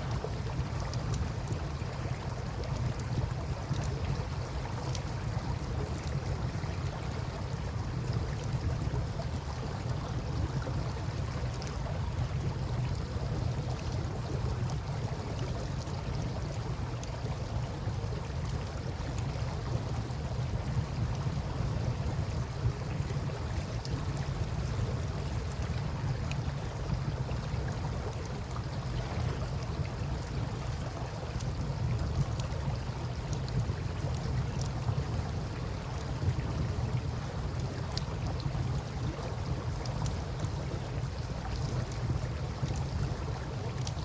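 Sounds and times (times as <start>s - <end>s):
low wind rumble: 0.0s - 44.0s
campfire crackling and popping: 29.3s - 44.0s.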